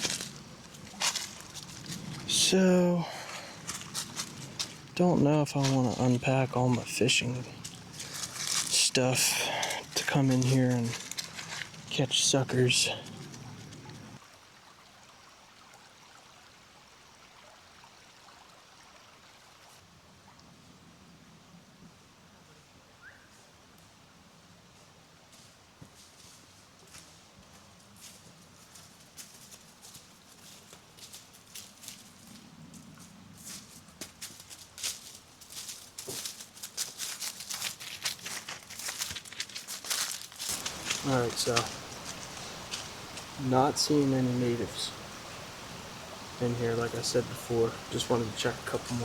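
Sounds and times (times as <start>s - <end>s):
footsteps crunching dry leaves: 0.0s - 2.3s, 3.0s - 13.8s, 33.4s - 44.1s
small stream flowing: 0.0s - 21.1s, 34.3s - 49.0s.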